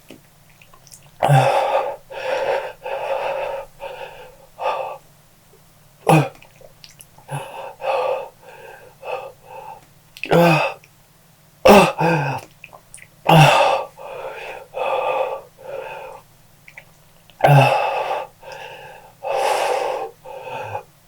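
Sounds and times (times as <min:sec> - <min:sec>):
man breathing hard and wheezing: 0:01.2 - 0:05.1, 0:07.2 - 0:10.8, 0:13.3 - 0:16.3, 0:17.4 - 0:21.0
man coughing loudly: 0:11.7 - 0:12.4.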